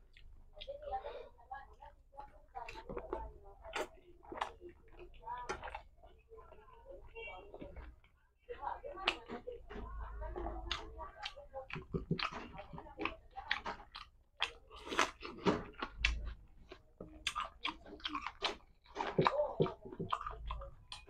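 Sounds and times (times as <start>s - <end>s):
man chewing: 0.0s - 0.7s, 3.7s - 6.2s, 10.7s - 21.0s.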